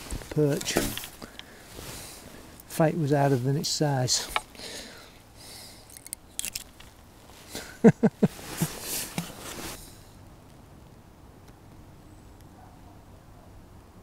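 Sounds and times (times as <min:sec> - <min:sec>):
short rustle: 0:00.0 - 0:03.6, 0:06.6 - 0:10.0.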